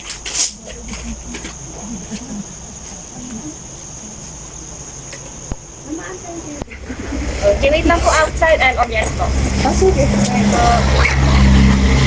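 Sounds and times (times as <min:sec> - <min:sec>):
distant voices murmuring: 0:00.0 - 0:12.0.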